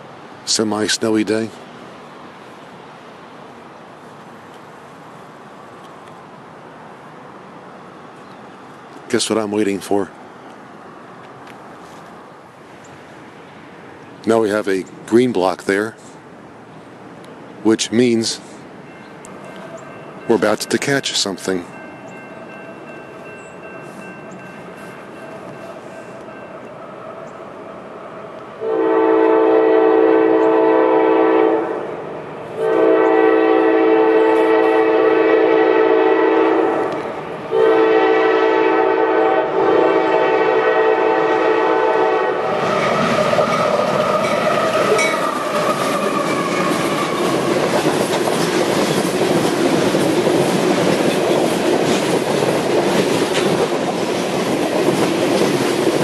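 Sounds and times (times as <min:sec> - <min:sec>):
locomotive air horn blasts: 0:28.6 - 0:31.9, 0:32.6 - 0:36.9, 0:37.5 - 0:42.8
train wheels clickety-clack: 0:42.6 - 0:56.0.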